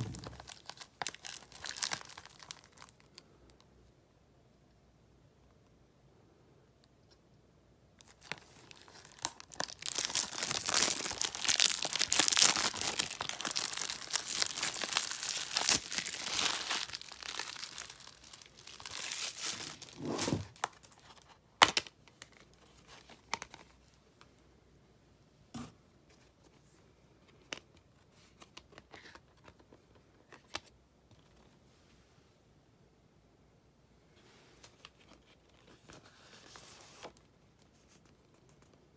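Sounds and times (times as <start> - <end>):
packaging crinkling: 0.0 - 3.2, 8.0 - 21.4.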